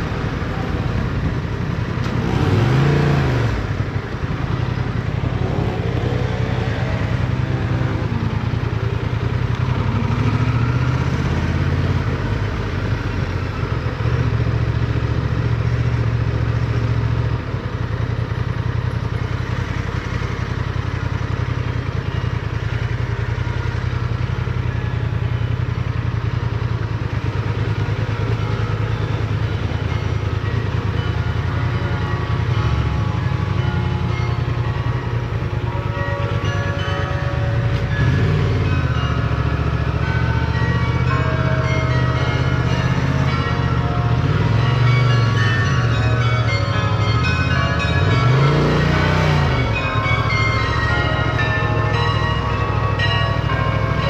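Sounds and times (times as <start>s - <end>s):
motorcycle engine revving: 0.0s - 12.9s, 37.6s - 41.6s, 42.2s - 52.4s.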